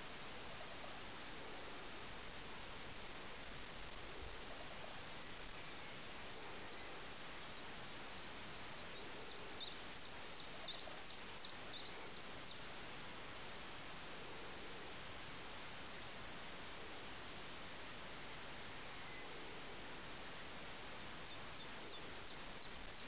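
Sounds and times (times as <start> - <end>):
steady outdoor hiss: 0.0 - 23.0
distant small bird singing: 3.4 - 12.7, 21.0 - 23.0.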